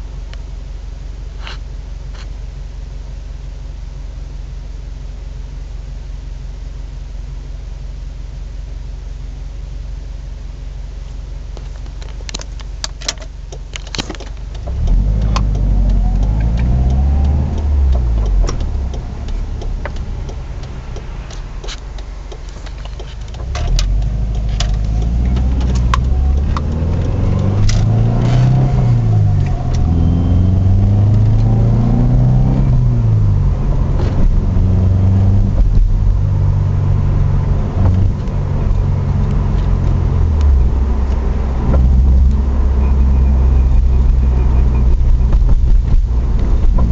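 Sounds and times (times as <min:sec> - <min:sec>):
car engine accelerating: 0:11.0 - 0:46.9.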